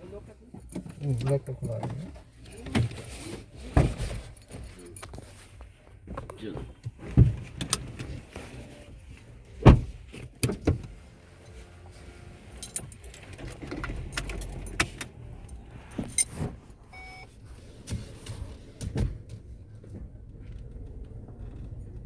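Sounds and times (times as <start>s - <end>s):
vehicle engine rumbling: 0.0s - 22.0s
sharp clunks and rattles: 9.5s - 11.0s, 12.6s - 17.0s, 17.8s - 22.0s.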